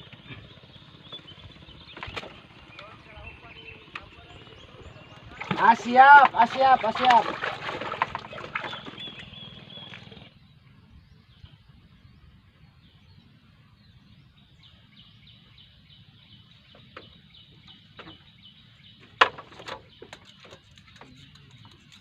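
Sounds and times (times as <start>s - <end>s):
bird chirping: 0.0s - 7.0s, 8.2s - 22.0s.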